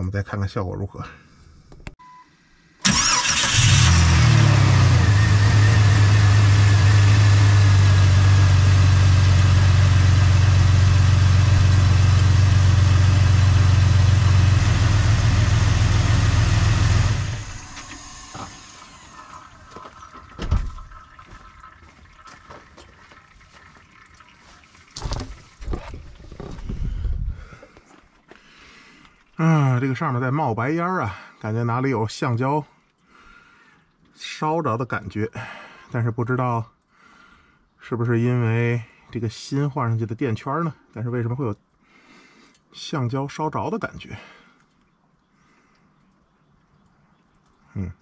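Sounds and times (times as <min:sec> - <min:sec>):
car engine starting and idling: 0:02.8 - 0:21.0.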